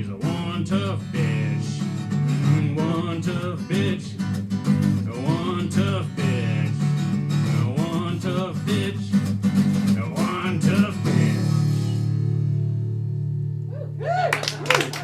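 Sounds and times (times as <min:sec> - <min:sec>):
acoustic guitar strumming: 0:00.0 - 0:13.6
audience cheering and clapping: 0:13.7 - 0:15.0.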